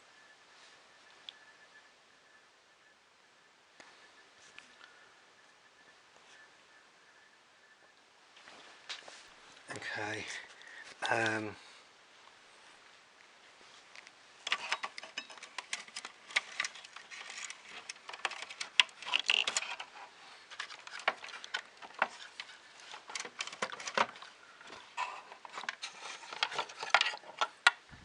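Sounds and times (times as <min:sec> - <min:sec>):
small parts clicking and rustling: 0:13.9 - 0:27.9.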